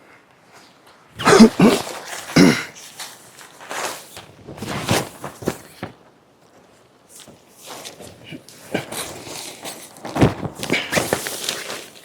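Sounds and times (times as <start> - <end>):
faint rustling: 0.4 - 12.0
soft scuffs: 0.5 - 6.0.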